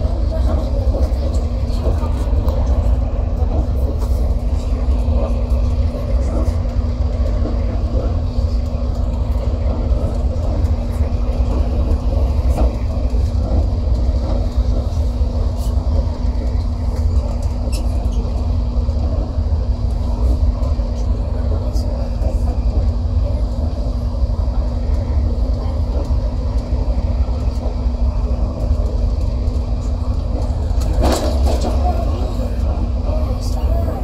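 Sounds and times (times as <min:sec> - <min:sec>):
passenger train rumbling: 0:00.0 - 0:34.0.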